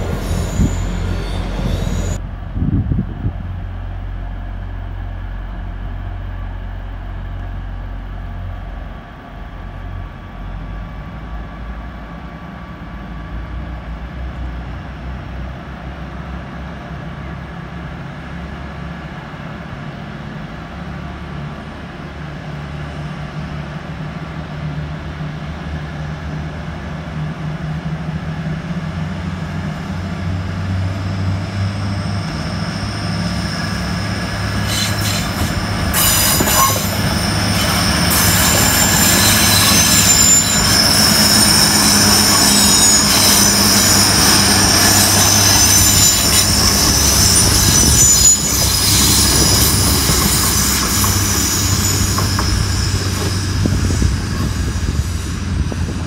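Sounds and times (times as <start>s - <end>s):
high-pitched wheel squeal: 0.0s - 2.2s, 31.7s - 55.9s
diesel train engine rumble: 0.0s - 56.0s.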